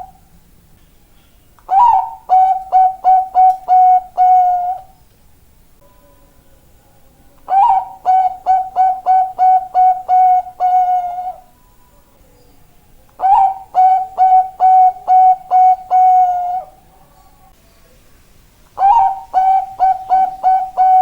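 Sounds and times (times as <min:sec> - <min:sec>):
dove cooing: 0:00.0 - 0:00.3, 0:01.7 - 0:05.0, 0:07.4 - 0:11.5, 0:13.2 - 0:17.5, 0:18.8 - 0:21.0.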